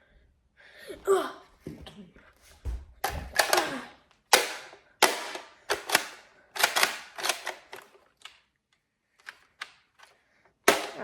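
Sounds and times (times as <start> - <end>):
toy blaster firing snaps: 4.3 - 7.8, 10.7 - 11.0.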